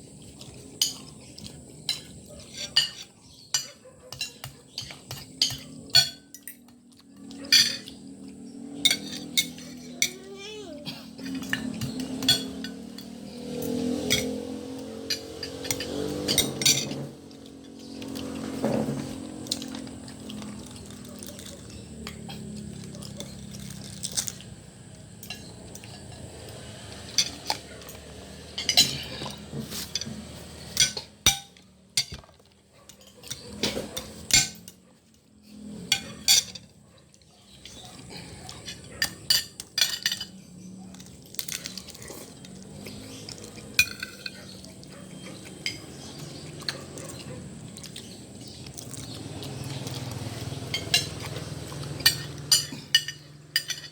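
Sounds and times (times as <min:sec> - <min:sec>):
cutlery clinking on a plate: 0:01.8 - 0:08.1, 0:08.8 - 0:10.2, 0:11.2 - 0:19.9, 0:25.2 - 0:34.8, 0:35.8 - 0:36.8, 0:38.5 - 0:40.4, 0:42.6 - 0:47.2, 0:50.0 - 0:53.9.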